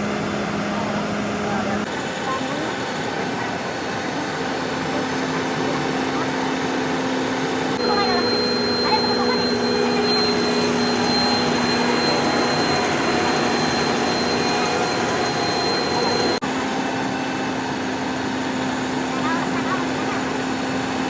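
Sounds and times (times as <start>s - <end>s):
tractor engine humming: 0.0s - 21.0s
high whine: 4.9s - 16.4s.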